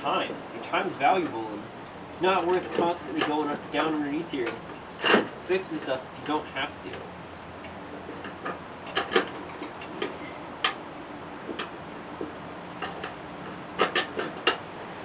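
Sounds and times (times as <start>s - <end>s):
tools and metal parts clicking: 7.6s - 10.8s, 12.8s - 14.6s.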